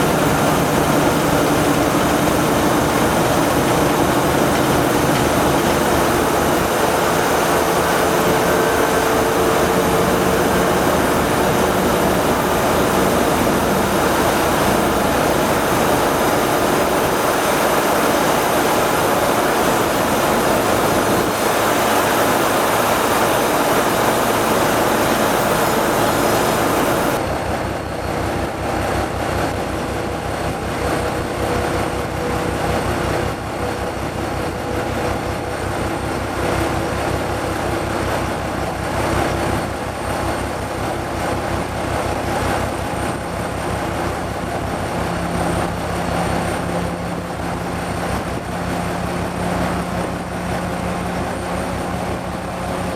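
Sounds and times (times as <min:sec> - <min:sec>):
loud rushing noise: 0:00.0 - 0:39.9
locomotive diesel engines running: 0:00.0 - 0:52.9.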